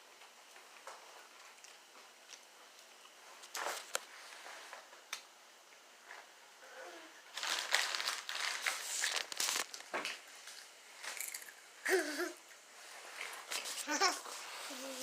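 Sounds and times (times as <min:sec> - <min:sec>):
chip bag crinkling: 0:07.3 - 0:09.9, 0:10.5 - 0:11.6.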